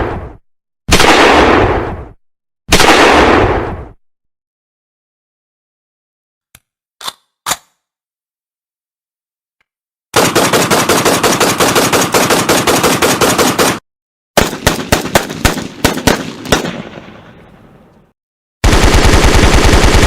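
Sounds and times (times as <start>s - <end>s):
gunshots with echo: 0.0s - 2.0s, 2.7s - 3.9s, 14.4s - 17.8s
automatic gunfire: 10.2s - 13.8s, 14.4s - 17.0s, 18.6s - 20.0s.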